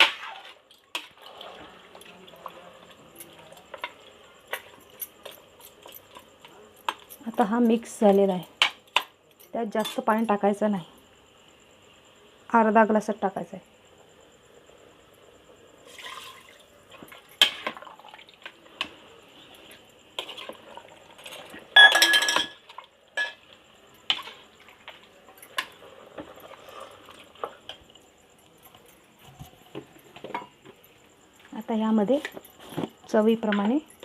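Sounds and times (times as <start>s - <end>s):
water pouring: 15.8s - 16.6s.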